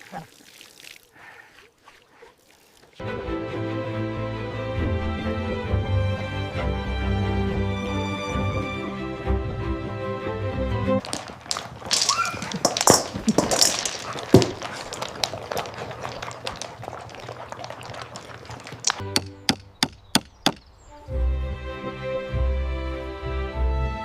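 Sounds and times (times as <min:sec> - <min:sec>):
sharp knocks and scuffling: 0:11.0 - 0:20.6.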